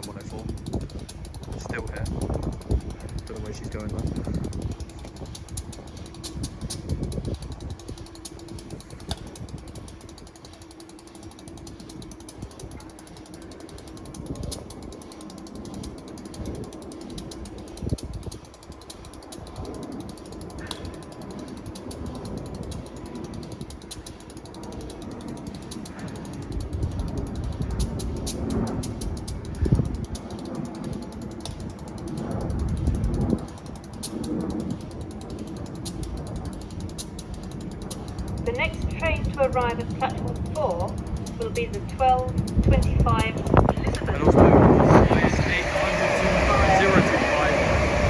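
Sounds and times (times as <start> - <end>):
diesel locomotive engine idling: 38.4 - 48.0.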